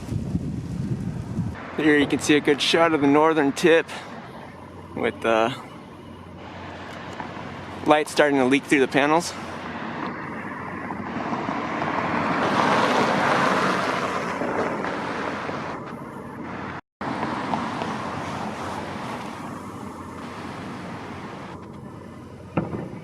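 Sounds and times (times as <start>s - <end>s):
wind on microphone: 0.0s - 2.2s
vehicle passing: 0.0s - 22.6s
road traffic noise: 0.0s - 23.0s.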